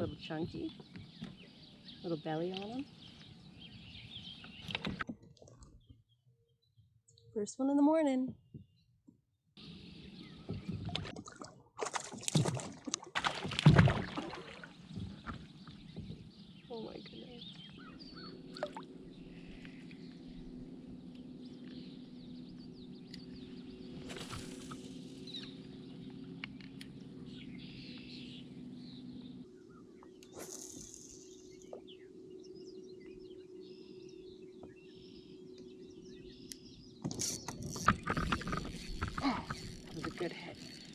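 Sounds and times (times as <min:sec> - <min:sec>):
birds chirping: 0:00.0 - 0:07.6, 0:09.6 - 0:10.9, 0:14.3 - 0:40.9
water sloshing around boat: 0:10.2 - 0:40.9.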